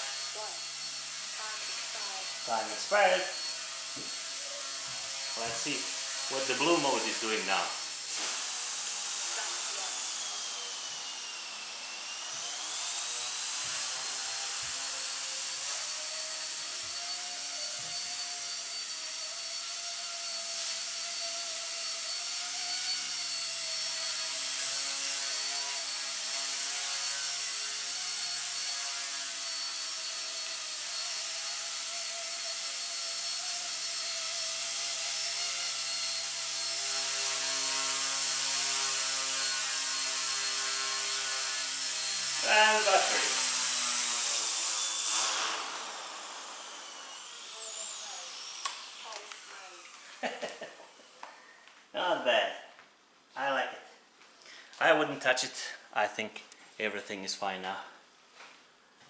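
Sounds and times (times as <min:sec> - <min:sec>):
rc helicopter motor whine: 0:00.0 - 0:51.2.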